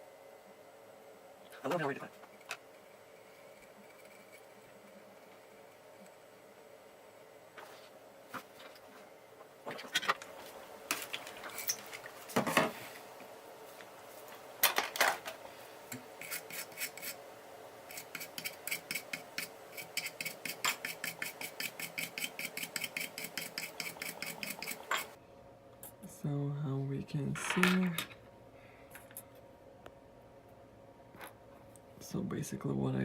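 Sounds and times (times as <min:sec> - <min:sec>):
hand tool scraping circuit board: 0:16.2 - 0:17.2, 0:17.9 - 0:25.2.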